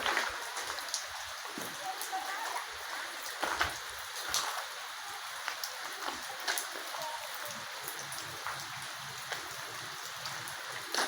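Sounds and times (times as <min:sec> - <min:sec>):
rain hissing: 0:00.0 - 0:11.0
raindrops ticking: 0:00.0 - 0:11.0.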